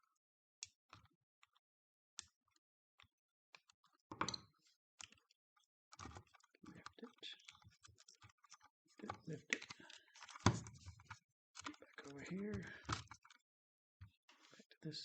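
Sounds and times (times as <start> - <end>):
clicks of plastic and metal parts: 5.0 - 13.4.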